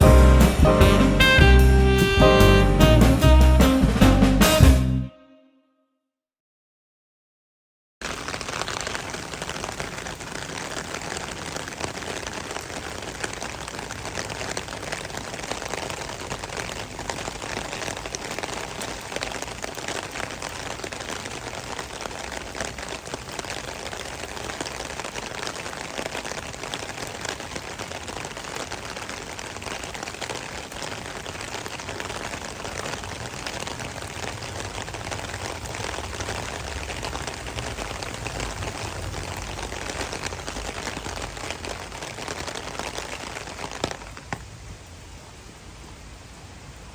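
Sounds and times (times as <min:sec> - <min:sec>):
steady rain falling: 0:00.0 - 0:05.0, 0:08.0 - 0:46.9.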